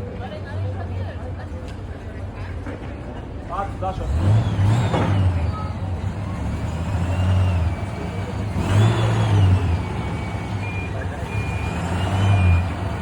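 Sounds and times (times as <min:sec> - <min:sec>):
vehicle engine revving: 0:03.8 - 0:13.0.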